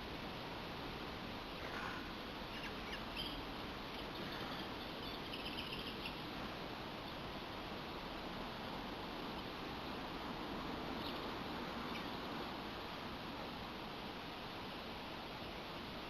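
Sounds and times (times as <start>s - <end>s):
steady background hiss: 0.0s - 16.0s
small bird chirping: 1.6s - 6.3s, 10.9s - 12.2s.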